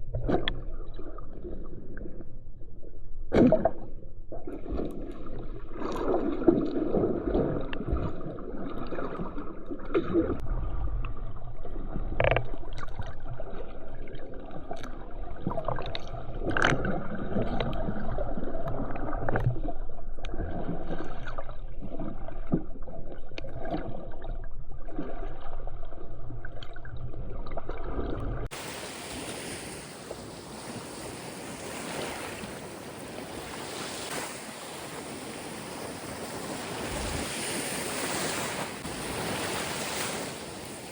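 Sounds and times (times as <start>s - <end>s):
muffled water sloshing: 0.0s - 40.9s
ocean surf washing ashore: 28.5s - 40.9s
wind on microphone: 28.5s - 40.9s.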